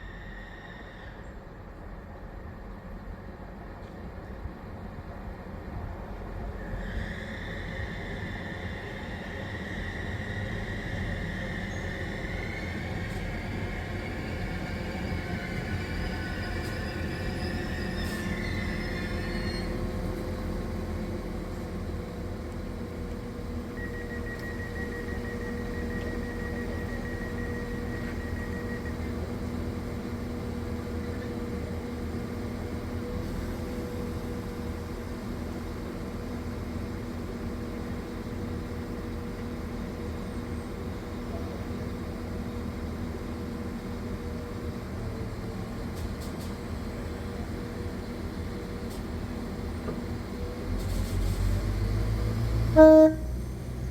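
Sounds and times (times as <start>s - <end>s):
diesel train droning hum: 0.0s - 53.9s
thin high whine: 52.8s - 53.4s.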